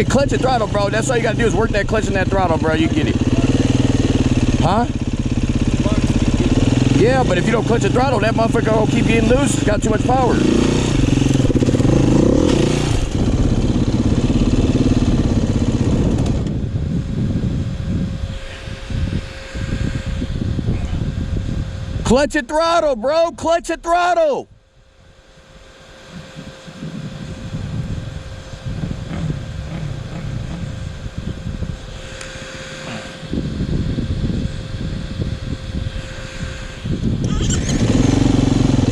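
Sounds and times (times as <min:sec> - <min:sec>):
dirt bike engine revving: 0:00.0 - 0:17.6, 0:25.7 - 0:38.9.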